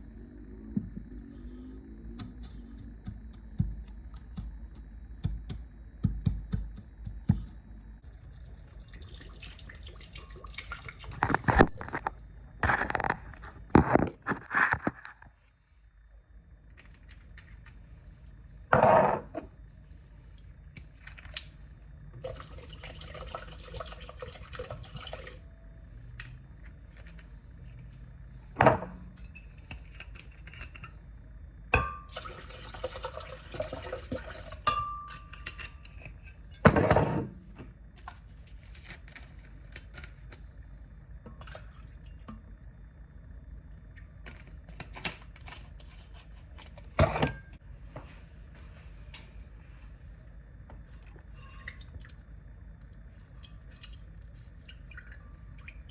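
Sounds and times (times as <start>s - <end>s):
liquid pouring: 8.2s - 11.6s, 22.2s - 25.4s, 32.1s - 34.6s, 53.3s - 55.9s.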